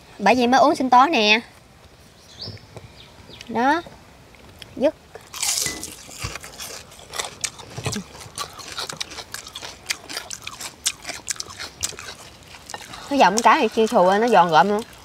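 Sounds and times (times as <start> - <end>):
chewing crunchy fried fish: 5.2 - 15.0.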